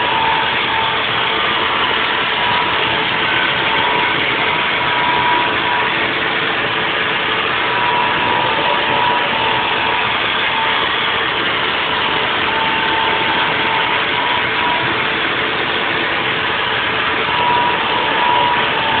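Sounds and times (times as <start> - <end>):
milling machine running with whine: 0.0 - 19.0.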